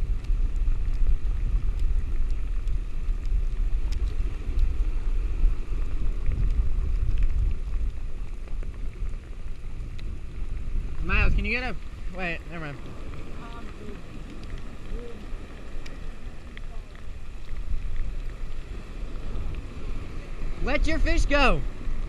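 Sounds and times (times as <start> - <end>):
heavy rain: 0.0 - 22.0
raindrops clicking: 0.0 - 22.0
wind and surf rumble: 0.0 - 22.0.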